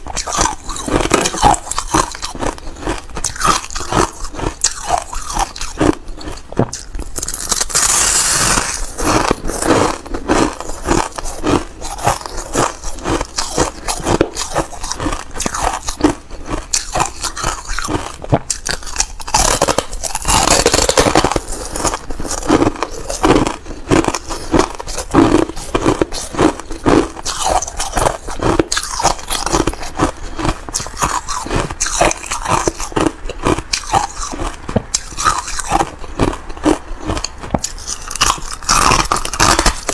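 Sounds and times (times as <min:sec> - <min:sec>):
ice crunching being chewed: 0:00.0 - 0:39.9.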